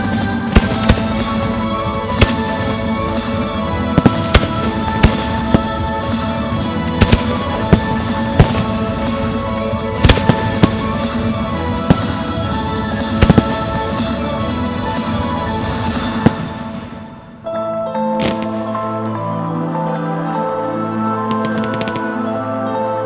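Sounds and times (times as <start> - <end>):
loud music: 0.0 - 23.0
firework shells bursting: 6.9 - 8.8, 11.9 - 13.9.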